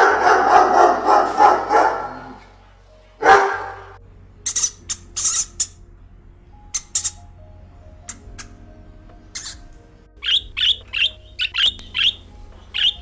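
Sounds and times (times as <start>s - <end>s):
small dog barking: 0.0s - 2.4s, 3.2s - 4.0s.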